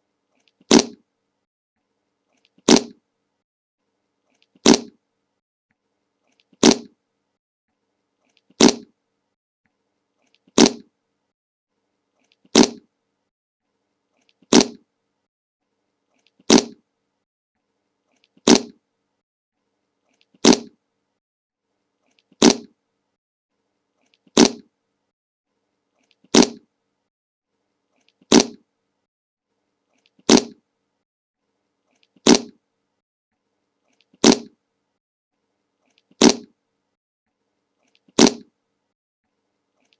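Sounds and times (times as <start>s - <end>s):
fart sound effect: 0.7s - 1.0s, 2.6s - 3.0s, 4.6s - 5.0s, 6.6s - 6.9s, 8.6s - 8.9s, 10.6s - 10.9s, 12.5s - 12.9s, 14.4s - 14.8s, 16.5s - 16.8s, 18.4s - 18.8s, 20.4s - 20.8s, 22.4s - 22.7s, 24.4s - 24.7s, 26.3s - 26.6s, 28.3s - 28.6s, 30.2s - 30.6s, 32.2s - 32.6s, 34.2s - 34.6s, 36.2s - 36.5s, 38.2s - 38.5s.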